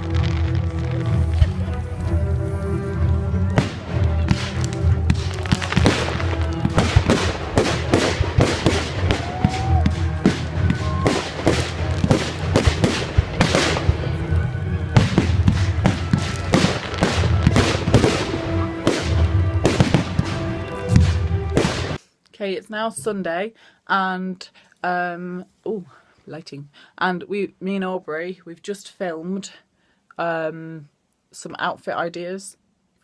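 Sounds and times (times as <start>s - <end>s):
fireworks bangs and crackles: 0.0s - 2.2s, 2.9s - 22.0s
music playing: 0.0s - 22.0s.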